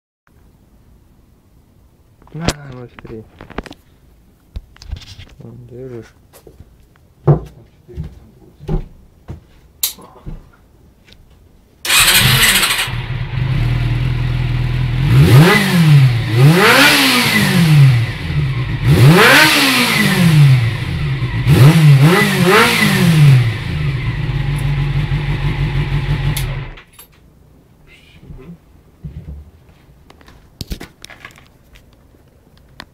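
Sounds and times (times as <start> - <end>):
motorcycle engine revving: 11.9 - 26.8.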